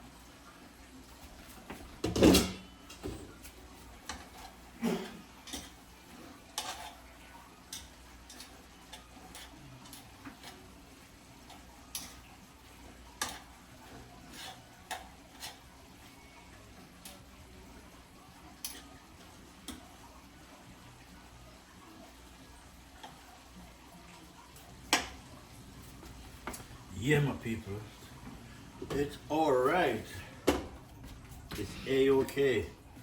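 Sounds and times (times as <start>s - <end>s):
utensil clanking against pot: 4.0s - 7.0s, 11.4s - 12.4s, 13.1s - 15.7s.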